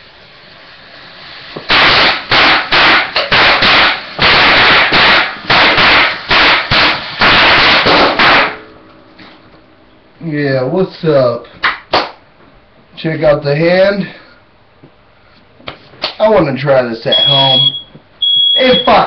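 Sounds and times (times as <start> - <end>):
firework bursts: 0.0 - 8.6.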